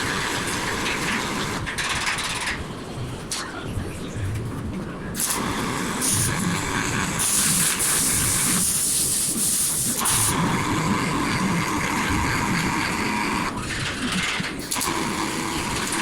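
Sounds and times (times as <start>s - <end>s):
welding arc hissing and crackling: 5.2s - 10.4s.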